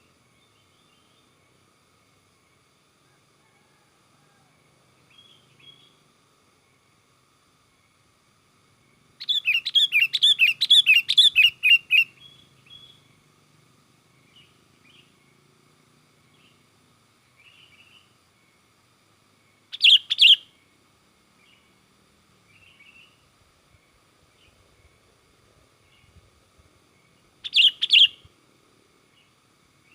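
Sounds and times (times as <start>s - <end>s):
bird chirping: 9.2s - 13.2s, 19.6s - 20.6s, 26.9s - 28.3s.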